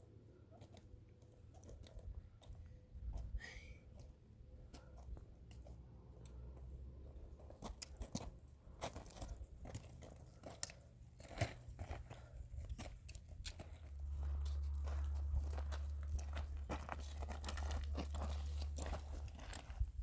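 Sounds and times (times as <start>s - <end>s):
low steady rumble: 1.3s - 20.0s.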